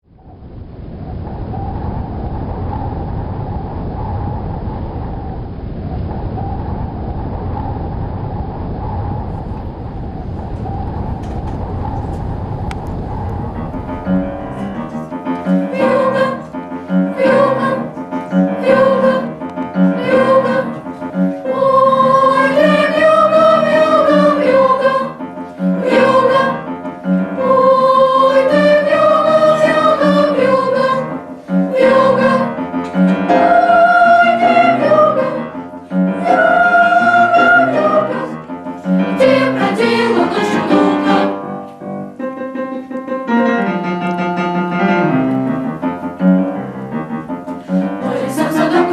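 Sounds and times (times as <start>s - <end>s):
children's choir singing: 13.2s - 41.6s, 47.7s - 48.9s.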